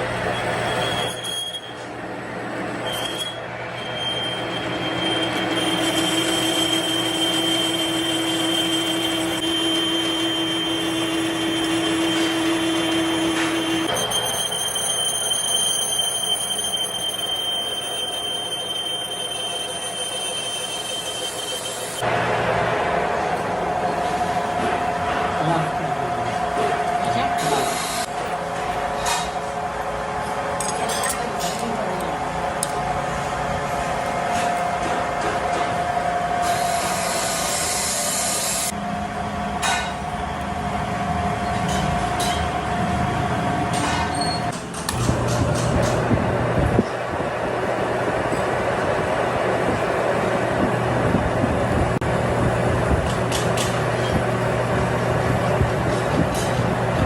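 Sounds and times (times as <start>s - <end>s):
workshop machinery noise: 0.0s - 57.0s
high-pitched squeal: 2.8s - 22.0s.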